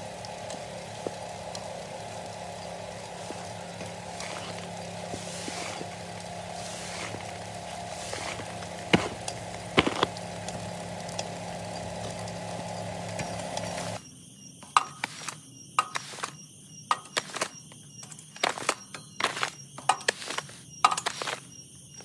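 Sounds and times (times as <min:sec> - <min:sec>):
washing machine motor hum: 0:00.0 - 0:14.0
scattered clicks and knocks: 0:07.0 - 0:11.3.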